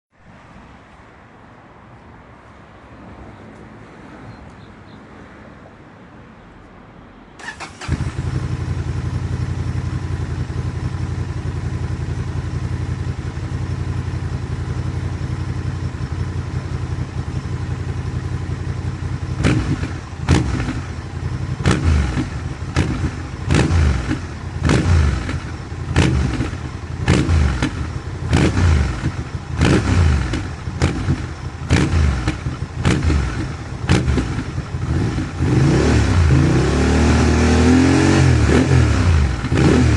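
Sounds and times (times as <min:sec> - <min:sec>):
motorcycle engine revving: 0:07.4 - 0:39.9
motorcycle engine idling: 0:07.5 - 0:35.5.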